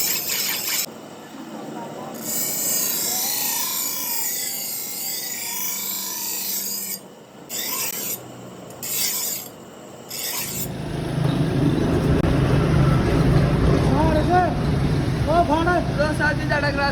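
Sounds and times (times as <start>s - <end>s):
blade being sharpened: 0.0s - 0.9s, 2.2s - 8.2s, 8.8s - 10.7s.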